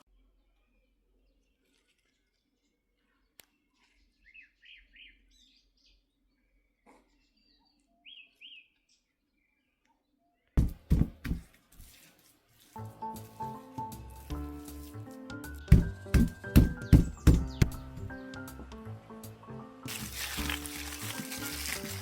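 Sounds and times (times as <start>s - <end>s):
small bird chirping: 0.4s - 10.5s
loud thumps: 10.6s - 11.4s, 15.7s - 18.0s
music: 12.7s - 22.0s.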